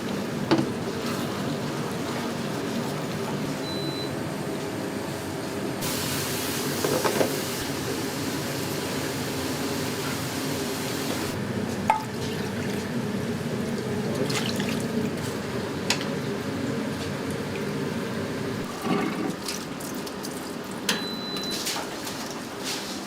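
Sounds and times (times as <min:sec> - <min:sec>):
water running from a tap: 0:13.7 - 0:15.2.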